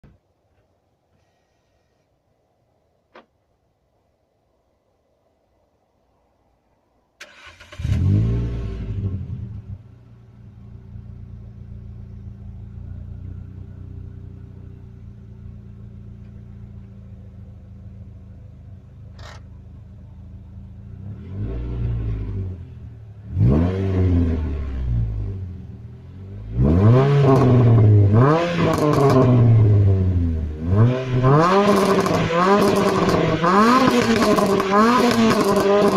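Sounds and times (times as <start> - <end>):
car engine starting and revving: 7.2 - 35.9.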